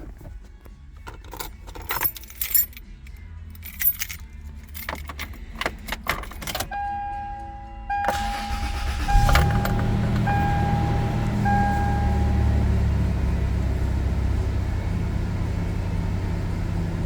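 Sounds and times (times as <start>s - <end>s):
keys jangling: 0.9s - 6.8s.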